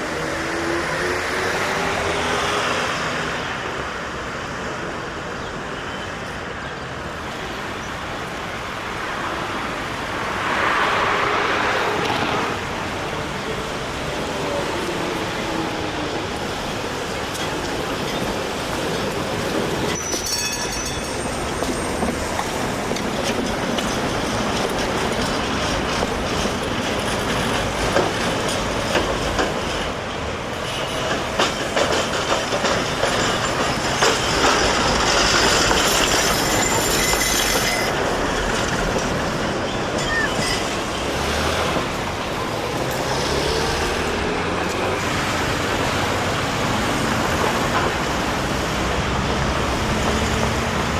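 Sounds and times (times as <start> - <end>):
tram running on rails: 0.0 - 50.9
high wheel squeals: 18.0 - 22.8, 33.1 - 38.5, 39.1 - 41.7.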